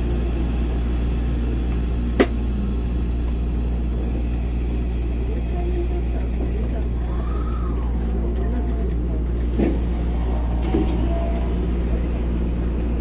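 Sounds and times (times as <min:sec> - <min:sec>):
electric train low rumble: 0:00.0 - 0:13.0.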